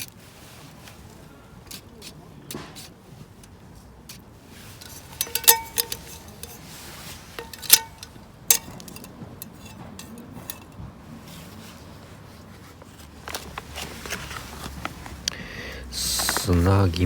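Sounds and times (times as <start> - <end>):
metal cookware clinking: 4.7 - 10.9.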